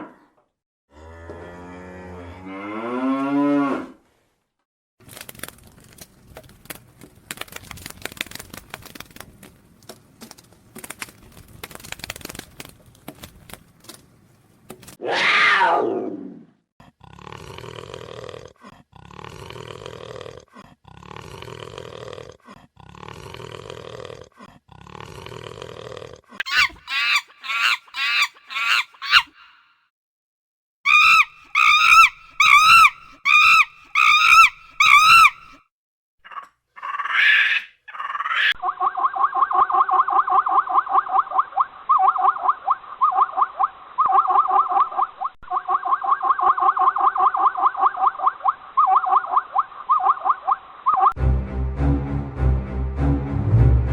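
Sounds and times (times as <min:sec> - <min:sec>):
long animal calls: 0:26.4 - 0:29.7, 0:30.9 - 0:35.6, 0:36.2 - 0:51.2
rising and falling pitched calls: 0:26.5 - 0:29.6, 0:30.9 - 0:35.6.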